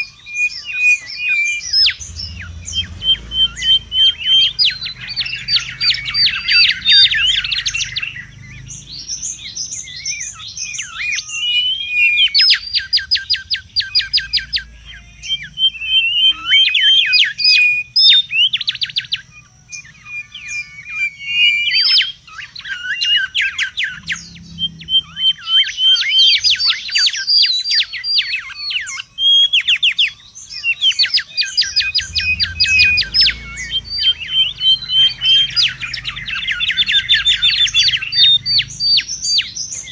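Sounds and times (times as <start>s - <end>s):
bird calling with sweeping whistles: 0.0s - 39.9s.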